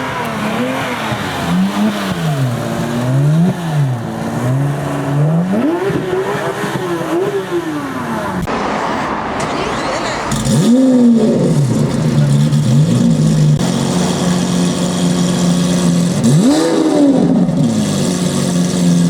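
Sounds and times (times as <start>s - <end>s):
car engine revving: 0.0s - 19.0s
rushing noise: 8.4s - 14.0s.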